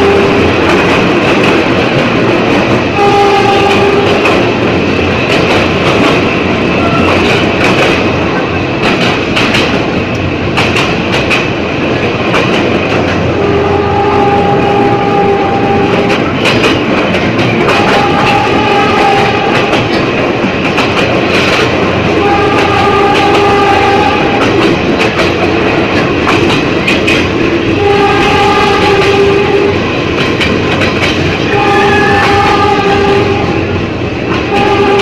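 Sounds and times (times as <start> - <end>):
train horn: 0.0 - 0.9, 2.9 - 4.6, 6.7 - 7.6, 13.2 - 16.5, 17.6 - 20.0, 22.0 - 24.8, 27.6 - 30.0, 31.4 - 33.8, 34.4 - 35.0
wheels clicking over rail joints: 0.0 - 14.1, 14.7 - 35.0
train running noise: 0.0 - 35.0.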